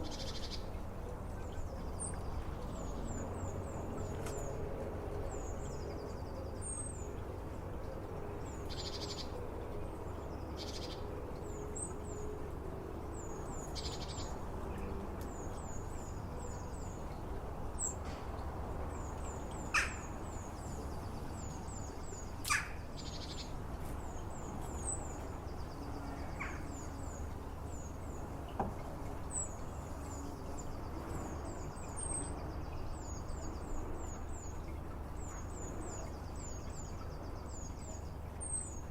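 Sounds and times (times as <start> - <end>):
goldfinch twittering: 19.6 - 23.5.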